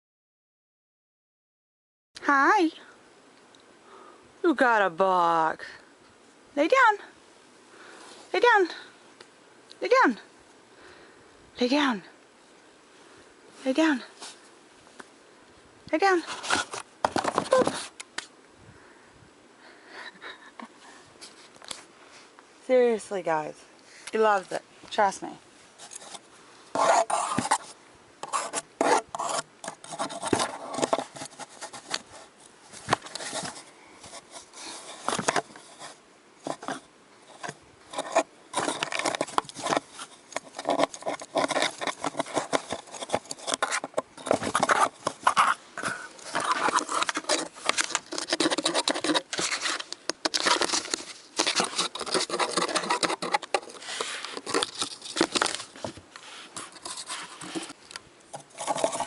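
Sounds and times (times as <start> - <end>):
pet scratching cardboard box: 16.0 - 17.9, 25.8 - 32.3, 32.9 - 59.0.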